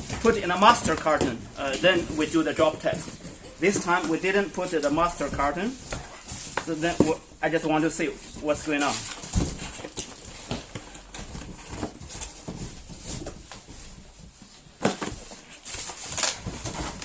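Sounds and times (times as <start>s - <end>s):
packing material rustling: 0.0s - 17.0s
sharp crinkles: 15.1s - 17.0s.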